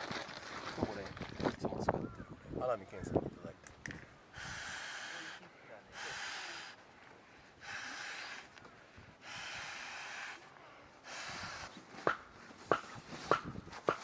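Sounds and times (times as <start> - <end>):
person breathing heavily: 4.3 - 11.8.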